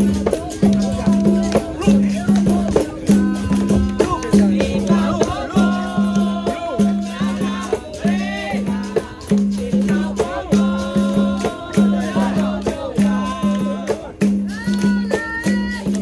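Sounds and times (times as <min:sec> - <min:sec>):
berimbau rhythm: 0:00.0 - 0:16.0
shaken rattle: 0:00.0 - 0:16.0
voices singing: 0:00.0 - 0:16.0.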